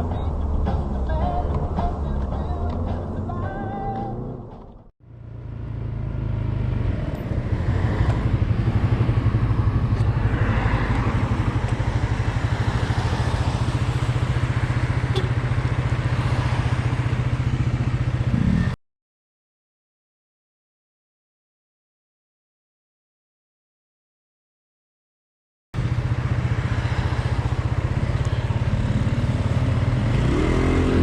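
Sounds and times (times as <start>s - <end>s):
music: 0.0s - 4.9s
vehicle engine throbbing: 0.0s - 18.8s.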